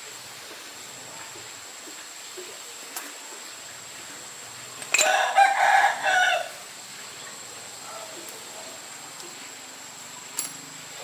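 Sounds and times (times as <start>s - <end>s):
faint steady hiss: 0.0s - 11.0s
rooster crowing: 5.0s - 6.7s.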